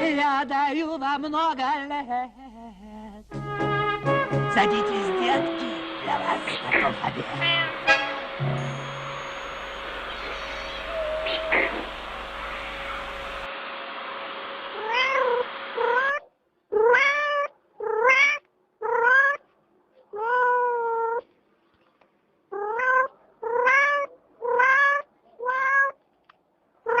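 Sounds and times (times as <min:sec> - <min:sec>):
background hiss: 0:00.0 - 0:16.1
cat meowing: 0:07.3 - 0:08.2, 0:09.4 - 0:13.4, 0:14.8 - 0:19.4, 0:20.1 - 0:21.3, 0:22.5 - 0:26.0.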